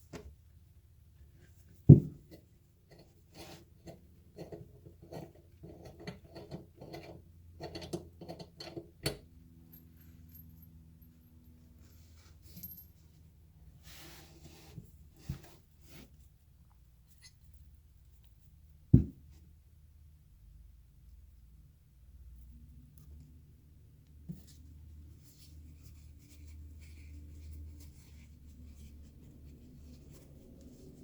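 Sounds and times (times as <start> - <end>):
thump: 1.9 - 2.2, 18.9 - 19.3.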